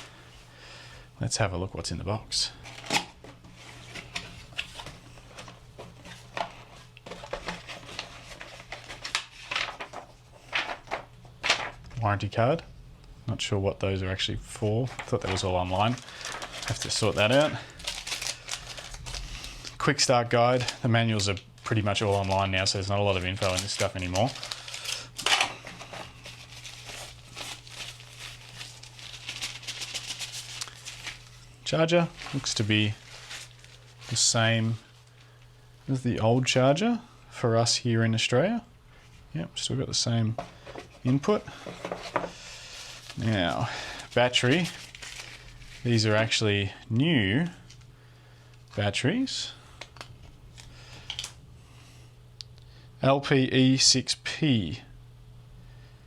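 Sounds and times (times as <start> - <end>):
low steady hum: 0.0 - 56.0
cardboard and paper rustling: 2.6 - 12.0, 14.5 - 19.8, 20.5 - 35.2, 40.4 - 46.3.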